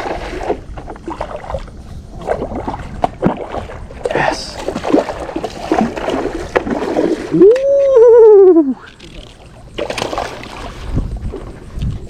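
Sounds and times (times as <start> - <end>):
water noise: 0.0 - 12.0
wind: 0.0 - 12.0
man whooping: 7.3 - 8.8.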